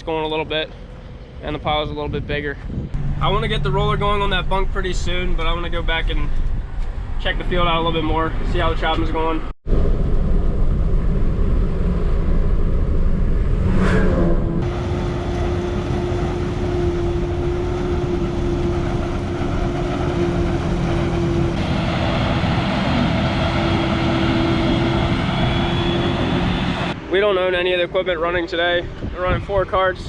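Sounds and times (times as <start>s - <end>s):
steady droning tone: 3.0s - 8.7s, 9.7s - 28.9s
rising sweep: 9.7s - 28.4s
heavy farm machinery running: 14.4s - 27.8s.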